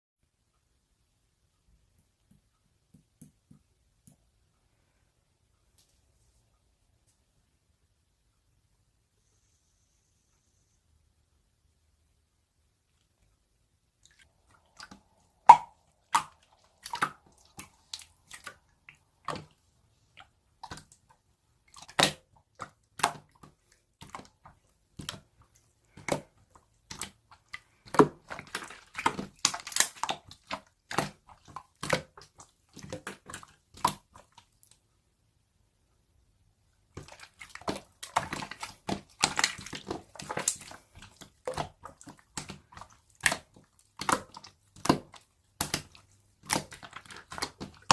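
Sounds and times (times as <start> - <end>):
slime squished by hand: 14.1 - 19.6, 21.7 - 34.4, 37.0 - 47.9.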